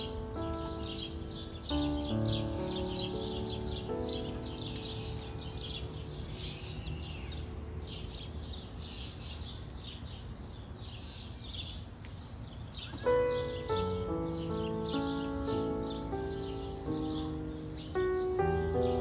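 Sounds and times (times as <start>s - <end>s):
background music: 0.0s - 8.6s, 13.2s - 19.0s
small birds chirping: 0.0s - 19.0s.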